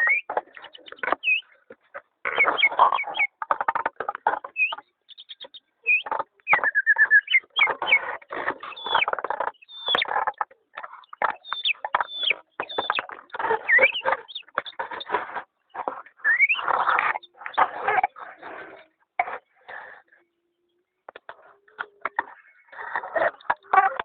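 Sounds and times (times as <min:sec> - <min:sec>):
pet bird singing: 0:00.0 - 0:03.4, 0:04.4 - 0:18.8.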